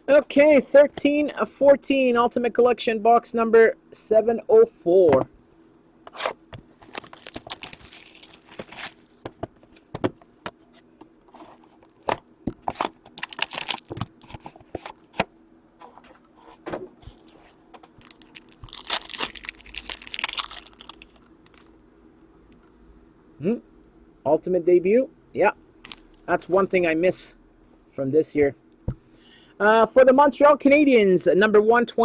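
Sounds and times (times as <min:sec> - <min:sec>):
wrapping tearing and crinkling: 0:06.1 - 0:09.3, 0:12.7 - 0:14.5, 0:17.1 - 0:21.8, 0:25.8 - 0:26.2.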